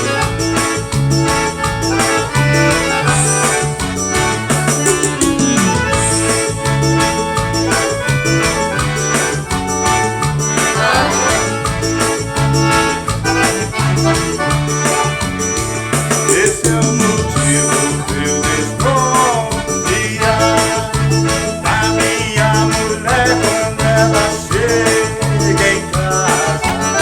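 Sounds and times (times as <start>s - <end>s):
band playing instrumental: 0.0s - 27.0s
bass and percussion beat: 0.0s - 27.0s.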